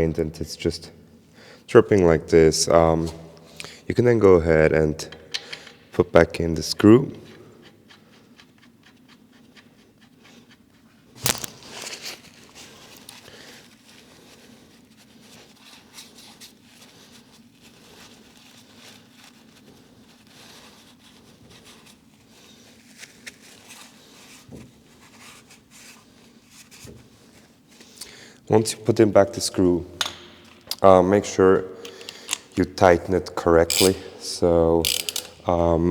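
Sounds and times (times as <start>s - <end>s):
handling noises and light clicks: 5.0s - 6.2s, 6.8s - 14.1s, 29.3s - 35.7s.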